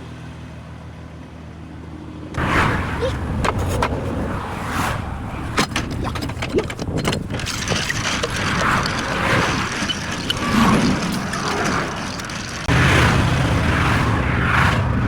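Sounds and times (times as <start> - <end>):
vehicle engine rumbling: 1.7 - 15.0
metallic clicks and clanks: 5.4 - 12.7.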